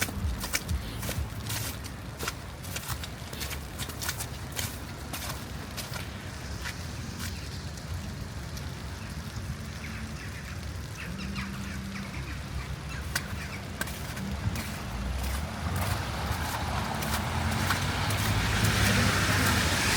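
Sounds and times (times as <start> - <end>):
footstep clicks: 0.0 - 7.3, 13.1 - 19.6
low city rumble: 0.0 - 19.9
water birds calling: 8.8 - 19.9.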